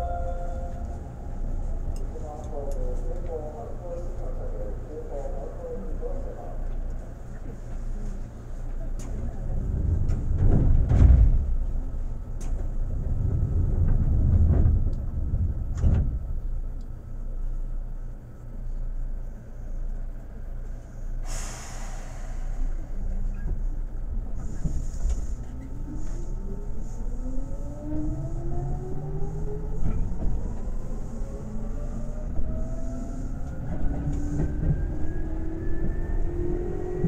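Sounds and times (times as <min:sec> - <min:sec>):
low train rumble: 0:00.0 - 0:37.0
train clunks and thumps: 0:08.6 - 0:16.8, 0:21.2 - 0:26.3, 0:29.6 - 0:31.3, 0:32.2 - 0:37.0
compressed air hiss: 0:21.2 - 0:22.9.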